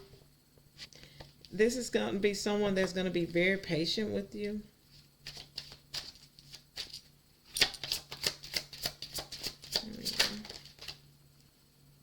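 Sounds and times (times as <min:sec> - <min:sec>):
cards shuffled by hand: 0:05.0 - 0:11.0.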